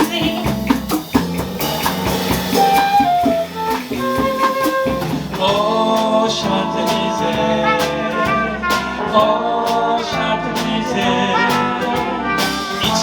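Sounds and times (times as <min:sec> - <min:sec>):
drum kit beat: 0:00.0 - 0:13.0
jazz band horn melody: 0:00.0 - 0:13.0.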